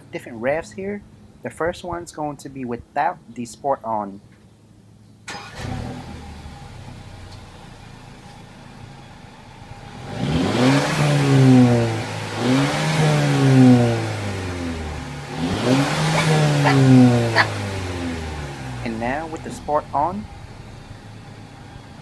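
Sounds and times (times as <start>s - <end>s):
car engine idling and revving: 5.3s - 22.0s.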